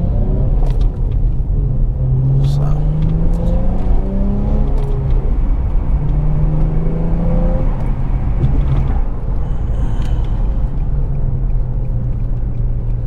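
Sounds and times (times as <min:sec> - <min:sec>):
car engine and exhaust driving: 0:00.0 - 0:13.0.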